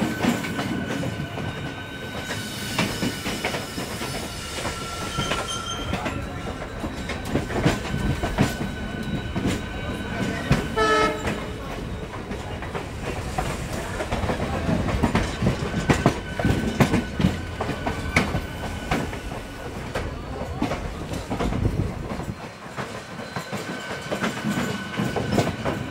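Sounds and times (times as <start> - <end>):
train wheels clattering: 0.0 - 25.9.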